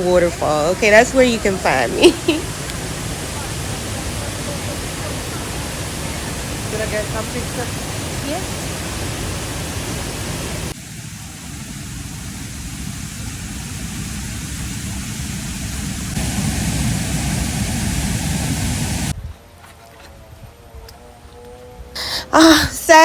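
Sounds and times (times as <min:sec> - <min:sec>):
waterfall rushing: 0:00.1 - 0:19.1.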